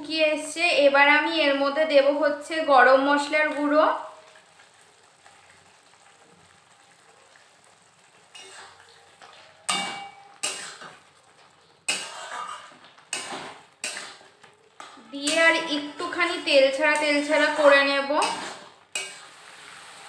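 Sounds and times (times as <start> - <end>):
chicken sizzling in a pan: 0.9 - 20.0
metal spatula scraping a pan: 7.4 - 20.0.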